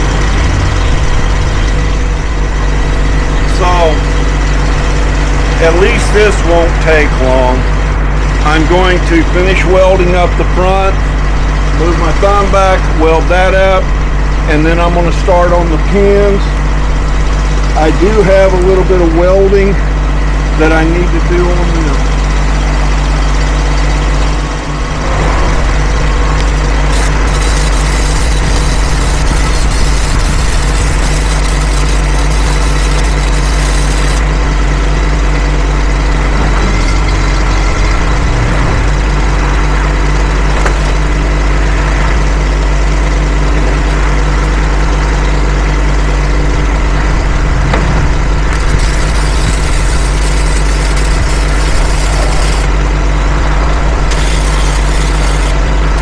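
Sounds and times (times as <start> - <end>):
engine idling: 0.0 - 56.0
welder arc crackling hiss: 26.8 - 34.2, 48.5 - 52.7, 54.1 - 56.0.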